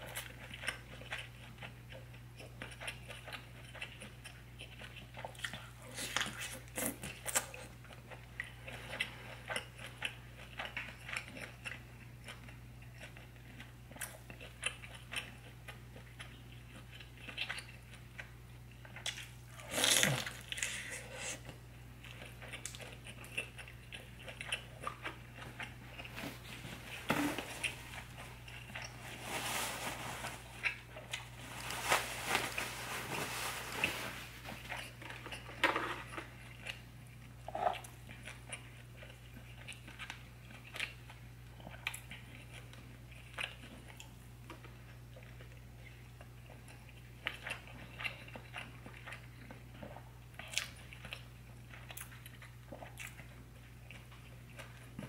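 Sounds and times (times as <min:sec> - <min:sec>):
wet chewing and mouth clicks: 0:00.0 - 0:26.3, 0:34.5 - 0:55.0
steady low hum: 0:06.6 - 0:55.0
paper napkin rustling: 0:26.0 - 0:34.9.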